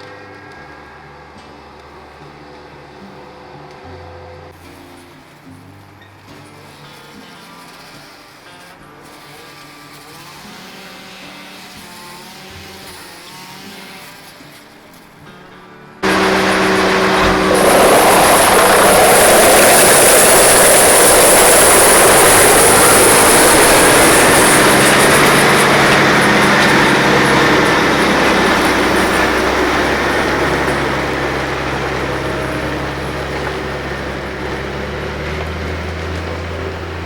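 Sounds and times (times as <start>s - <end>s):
heavy diesel machinery rumbling: 16.0s - 37.0s
high hiss: 16.0s - 37.0s.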